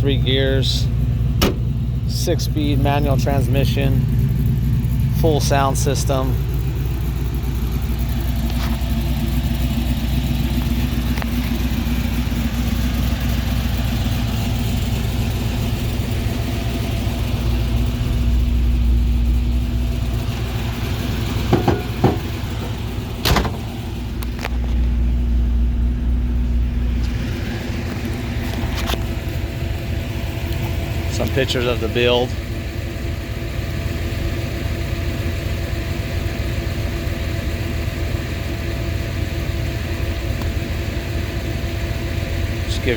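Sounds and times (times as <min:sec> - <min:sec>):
car engine idling: 0:00.0 - 0:42.9
short sharp knocks: 0:21.5 - 0:22.4.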